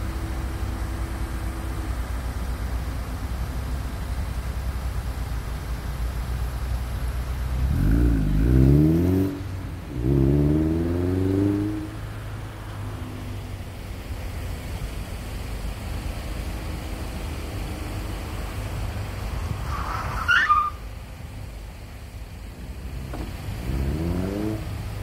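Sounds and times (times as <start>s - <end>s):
car engine accelerating: 6.6s - 20.1s, 21.4s - 25.0s.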